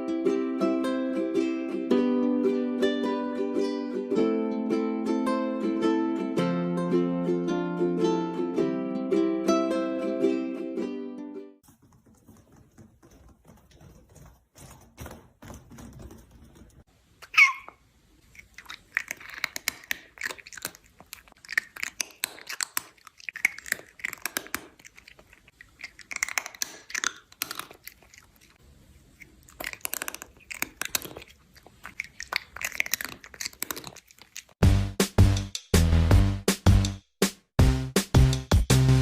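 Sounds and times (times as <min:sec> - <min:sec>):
short squeak: 0:17.2 - 0:17.8
crunchy chewing: 0:17.2 - 0:34.6.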